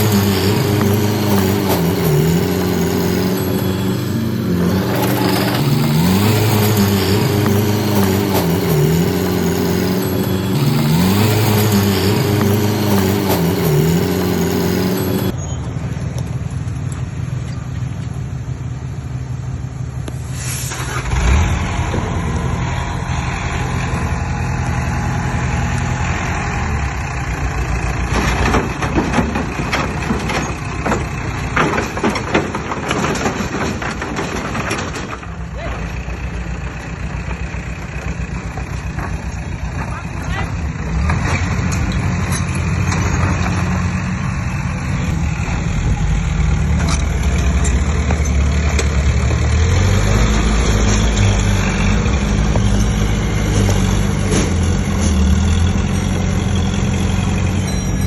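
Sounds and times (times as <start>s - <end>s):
knocks and clatter: 0.0s - 15.4s, 26.6s - 58.0s
heavy diesel machines running: 0.0s - 58.0s
short hiss: 20.2s - 21.2s.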